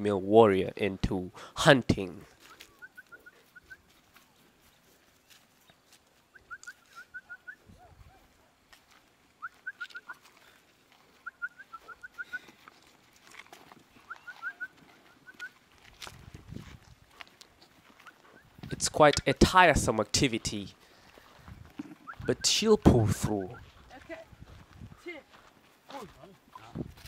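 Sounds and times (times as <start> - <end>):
bird chirping: 13.9 - 15.6, 21.8 - 22.4.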